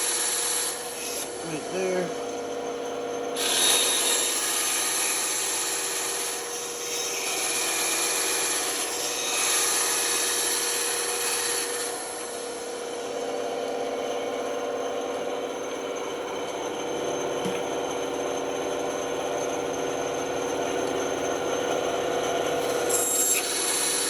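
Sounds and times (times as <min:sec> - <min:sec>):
band saw cutting wood: 0:00.0 - 0:02.4, 0:03.3 - 0:24.0
saw motor hum: 0:00.0 - 0:24.0.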